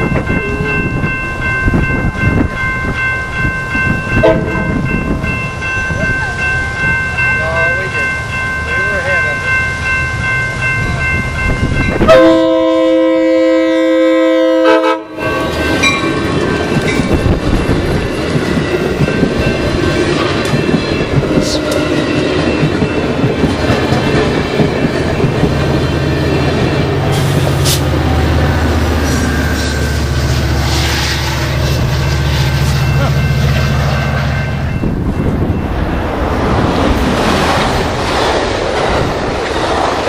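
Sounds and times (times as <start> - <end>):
crossing bells ringing: 0.0 - 39.5
diesel locomotive rumbling: 0.0 - 40.0
loud train horn: 4.2 - 4.7, 12.0 - 15.4.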